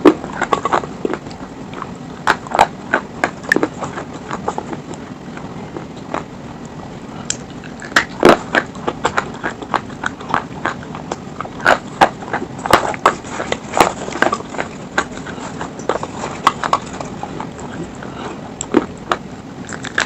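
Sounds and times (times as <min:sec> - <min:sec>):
crunching and chewing stone: 0:00.0 - 0:20.0.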